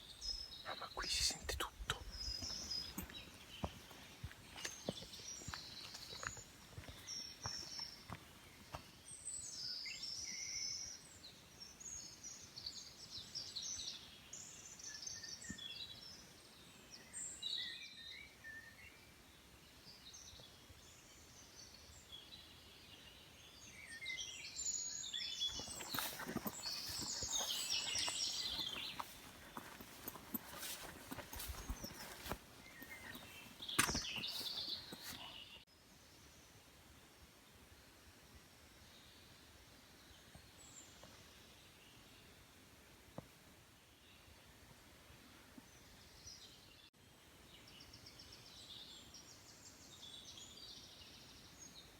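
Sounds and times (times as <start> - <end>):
songbirds chirping: 0.0 - 51.9
rustling with clicks: 25.5 - 35.3.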